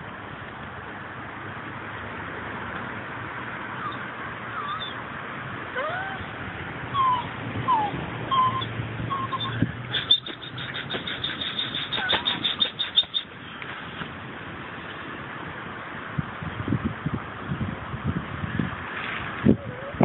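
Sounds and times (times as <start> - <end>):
birds chirping: 7.0 - 13.6.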